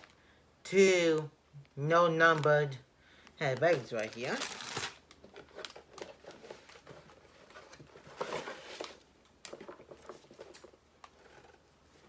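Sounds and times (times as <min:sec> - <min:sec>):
plastic bags crinkling: 0:02.2 - 0:02.8, 0:03.4 - 0:11.5.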